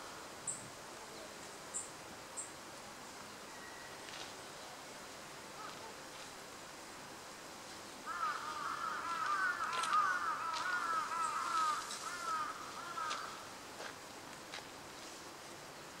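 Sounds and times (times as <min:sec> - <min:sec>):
birds chattering: 0:08.1 - 0:13.4.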